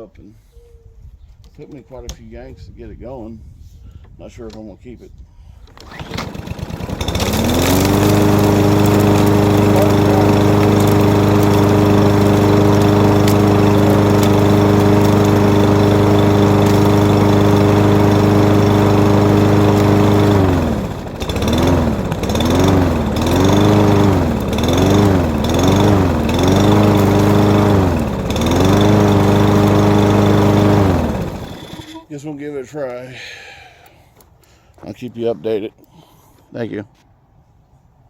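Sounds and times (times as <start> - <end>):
lawn mower engine surging: 5.7 - 32.1.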